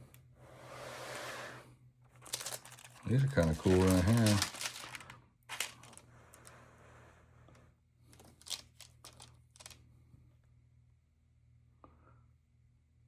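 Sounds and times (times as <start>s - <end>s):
low steady hum: 0.0s - 13.0s
pages rustling: 2.2s - 6.5s, 8.1s - 9.8s.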